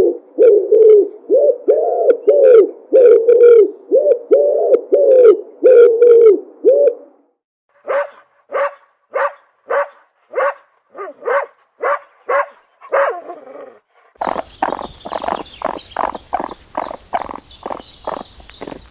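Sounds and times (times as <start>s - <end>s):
dog barking: 7.8s - 13.4s
animal pitched calls: 14.2s - 18.9s.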